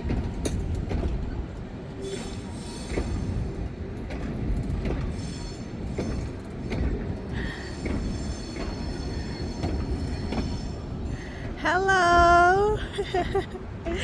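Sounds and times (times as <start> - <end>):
wheels clicking over rail joints: 0.0 - 1.7
train rumbling: 0.0 - 14.0.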